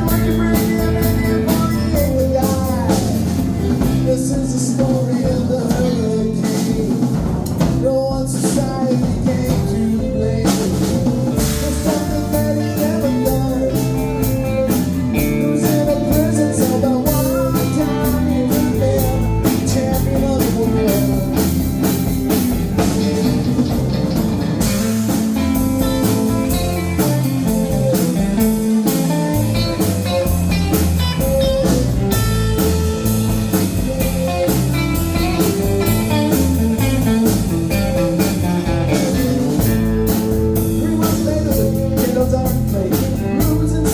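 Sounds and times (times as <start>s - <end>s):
electric guitar bending melody: 0.0s - 7.8s, 8.8s - 43.9s
live band playing blues-rock: 0.0s - 43.9s.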